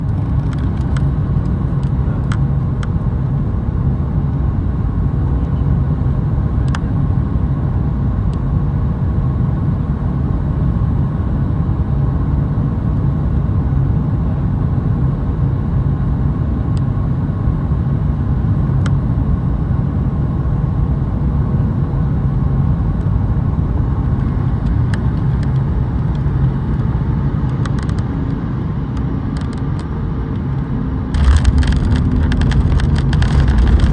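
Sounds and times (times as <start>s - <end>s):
airliner engines rumbling in cabin: 0.0s - 33.9s
small clicks: 31.1s - 33.9s.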